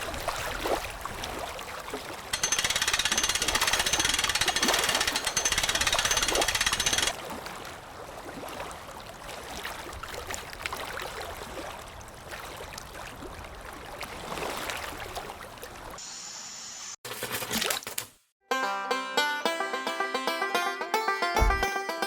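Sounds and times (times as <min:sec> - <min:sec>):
water splashing and gurgling: 0:00.0 - 0:16.0
fast mechanical rattle: 0:02.4 - 0:07.2.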